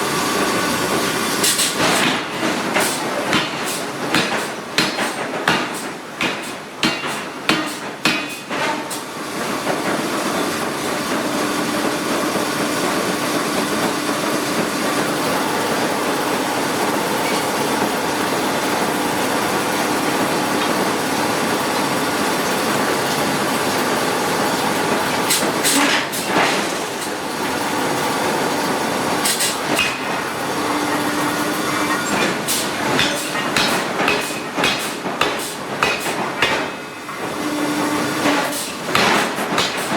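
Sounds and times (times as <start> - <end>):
forging hammer striking steel: 1.5 - 8.8, 29.3 - 30.2, 31.4 - 37.4, 38.2 - 39.9.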